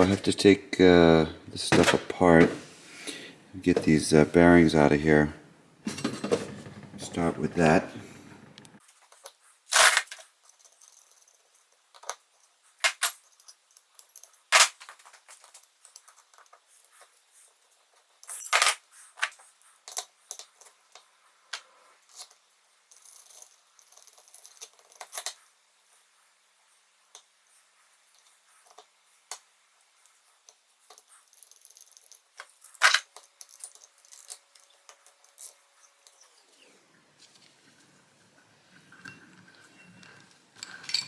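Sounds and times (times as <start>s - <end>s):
metal parts and tools clinking: 5.9s - 8.7s, 18.2s - 18.8s, 30.9s - 35.6s, 38.7s - 41.0s.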